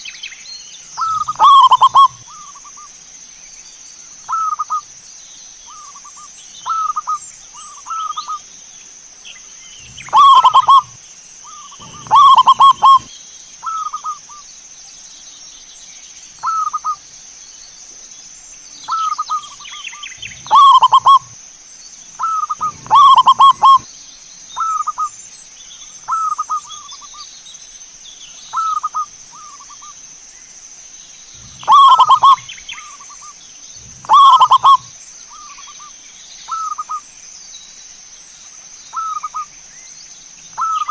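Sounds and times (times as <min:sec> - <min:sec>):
faint high-pitched hiss: 0:00.0 - 0:40.9
dove cooing: 0:01.0 - 0:02.6, 0:09.8 - 0:14.2, 0:20.2 - 0:21.4, 0:22.2 - 0:23.9, 0:31.4 - 0:33.2, 0:33.8 - 0:35.0, 0:40.6 - 0:40.9.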